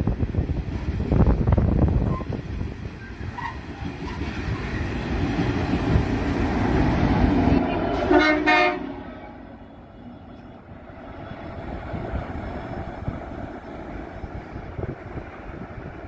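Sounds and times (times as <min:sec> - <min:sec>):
freight train rumbling past: 0:00.0 - 0:16.0
train horn blast: 0:07.6 - 0:09.8.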